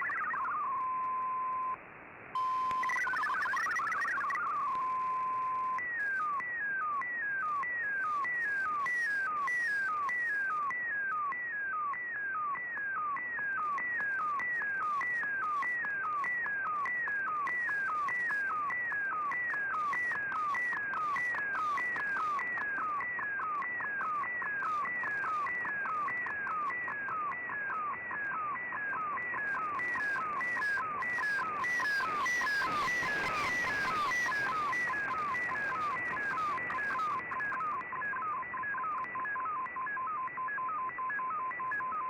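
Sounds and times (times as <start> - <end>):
steady radio tone: 28.4 - 42.0.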